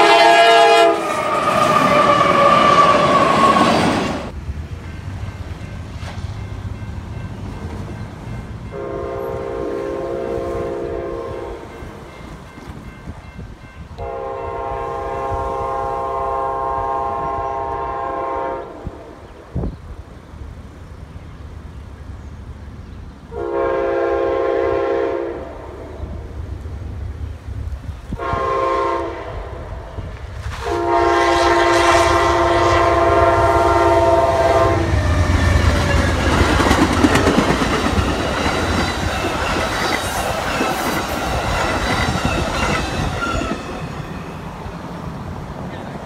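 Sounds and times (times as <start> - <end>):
locomotive horn blasts: 0.0 - 3.7, 8.7 - 12.0, 13.9 - 19.0, 23.3 - 25.9, 28.1 - 29.8, 30.6 - 36.1
train rumbling past: 0.0 - 46.0.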